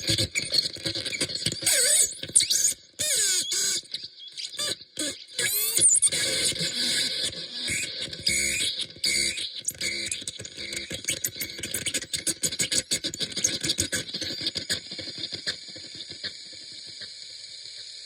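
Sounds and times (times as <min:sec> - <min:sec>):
stuttering electronic crackles and clicks: 0:05.8 - 0:18.0.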